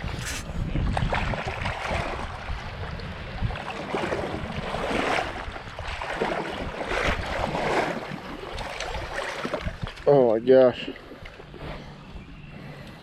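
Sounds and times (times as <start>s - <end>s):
wind buffeting microphone: 0.0s - 10.1s
moving water: 0.0s - 13.0s.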